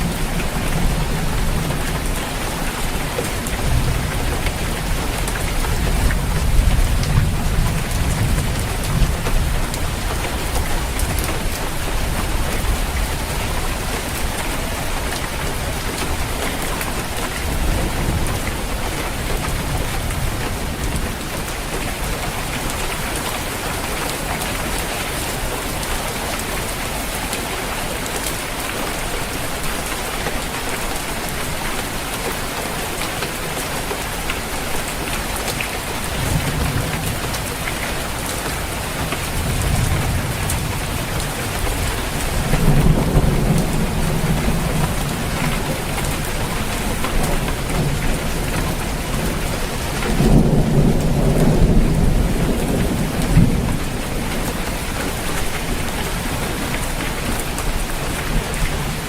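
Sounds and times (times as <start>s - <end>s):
rain falling on a roof: 0.0s - 59.0s
thunder rumbling: 36.1s - 57.7s.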